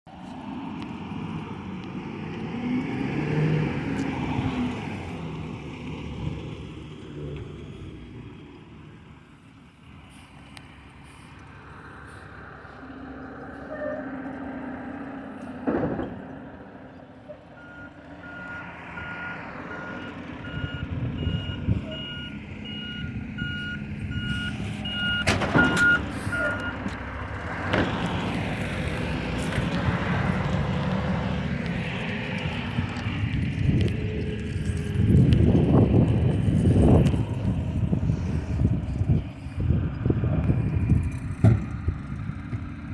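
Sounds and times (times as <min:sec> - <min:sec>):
truck reverse alarm beeping: 0:17.6 - 0:27.0.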